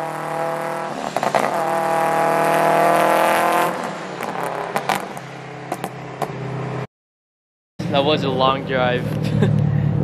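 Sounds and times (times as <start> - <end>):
exhaust popping: 0.0 - 6.4
car engine pulling under throttle: 0.0 - 6.8.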